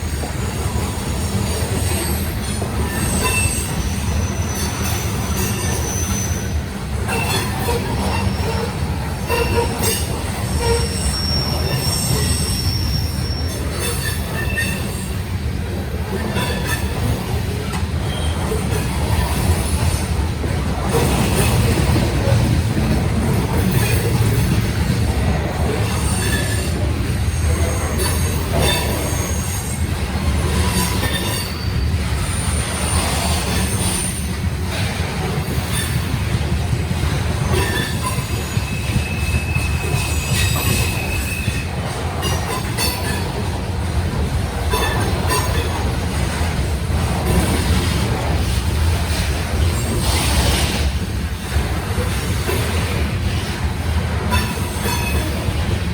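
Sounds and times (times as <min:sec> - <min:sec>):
freight train wheels rumbling: 0:00.0 - 0:55.9
high-pitched wheel squeals: 0:01.8 - 0:15.2, 0:37.4 - 0:41.6.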